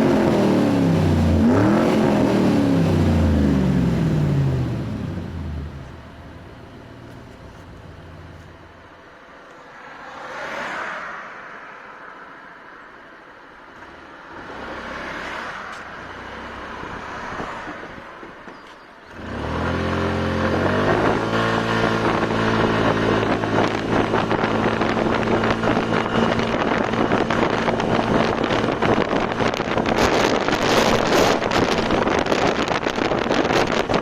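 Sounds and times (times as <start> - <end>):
scooter accelerating: 0.0 - 8.9, 15.7 - 34.0
wind buffeting microphone: 20.5 - 34.0.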